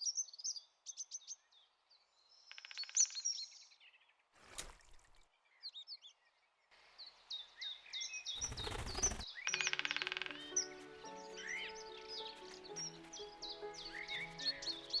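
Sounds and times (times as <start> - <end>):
songbirds chirping: 0.0 - 4.3, 5.3 - 15.0
background music with held notes: 8.6 - 15.0.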